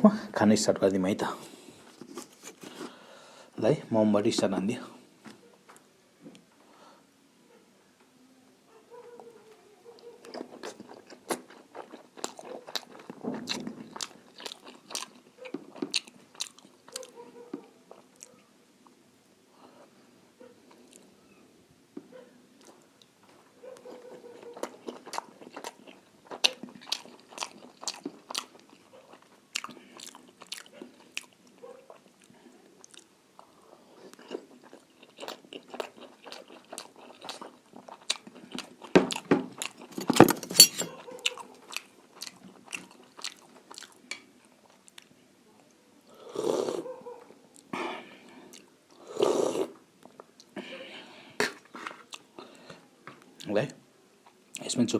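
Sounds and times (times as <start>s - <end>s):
chewing and lip-smacking: 10.0s - 18.5s, 23.7s - 40.1s, 40.9s - 45.1s, 48.5s - 48.7s, 51.4s - 52.5s.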